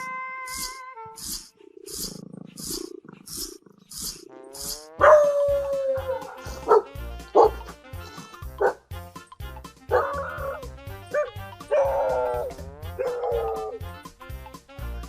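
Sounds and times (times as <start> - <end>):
animal calling: 0.0 - 7.8, 9.9 - 13.9
background music with steady beat: 5.0 - 15.0.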